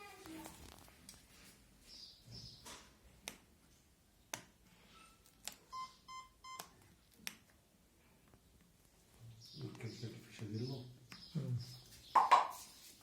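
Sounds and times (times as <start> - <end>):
short electronic beeps: 5.7 - 6.7.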